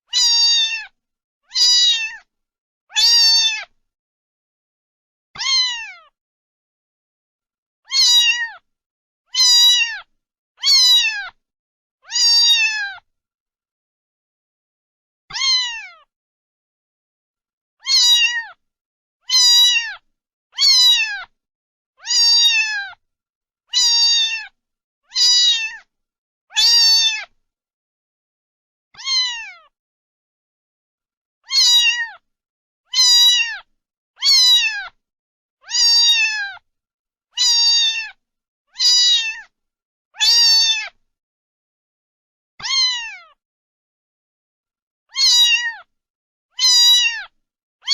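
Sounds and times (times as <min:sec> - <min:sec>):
cat meowing: 0:00.1 - 0:02.3, 0:02.9 - 0:03.7, 0:05.4 - 0:06.2, 0:07.9 - 0:08.6, 0:09.3 - 0:11.4, 0:12.0 - 0:13.0, 0:15.3 - 0:16.1, 0:17.8 - 0:18.6, 0:19.2 - 0:20.0, 0:20.6 - 0:21.3, 0:22.0 - 0:23.0, 0:23.7 - 0:25.9, 0:26.5 - 0:27.4, 0:29.0 - 0:29.7, 0:31.4 - 0:32.2, 0:32.9 - 0:35.0, 0:35.6 - 0:36.6, 0:37.4 - 0:38.2, 0:38.8 - 0:39.5, 0:40.2 - 0:41.0, 0:42.6 - 0:43.4, 0:45.1 - 0:45.9, 0:46.5 - 0:47.9.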